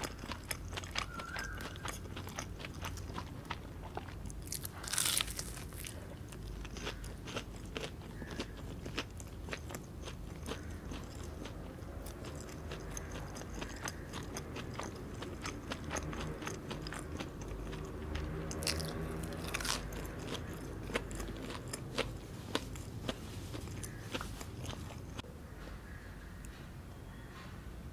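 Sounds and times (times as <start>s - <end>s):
chewing and biting: 0.0s - 25.2s.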